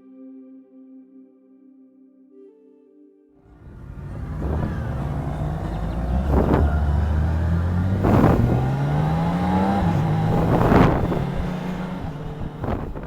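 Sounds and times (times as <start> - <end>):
motorcycle engine accelerating: 3.5 - 13.0.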